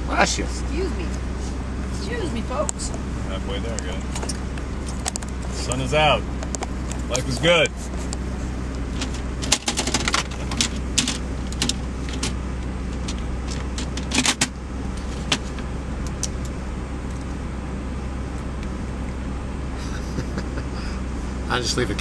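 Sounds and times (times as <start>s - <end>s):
car interior drone: 0.0s - 22.0s
clicks and rattles: 8.9s - 12.4s, 13.0s - 14.5s.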